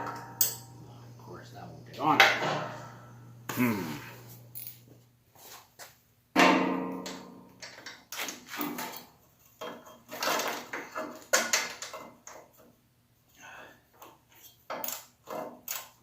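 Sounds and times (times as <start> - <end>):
knocks and clanks of tools: 2.1 - 3.1, 6.4 - 12.7.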